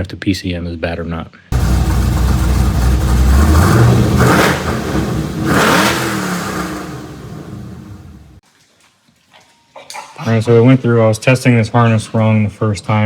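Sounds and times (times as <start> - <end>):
car engine revving: 1.6 - 8.4.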